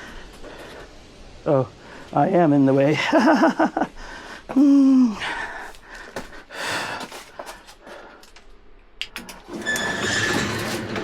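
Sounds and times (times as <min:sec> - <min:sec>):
person gasping: 0:03.9 - 0:08.3
small clicks and rustles: 0:07.0 - 0:09.6.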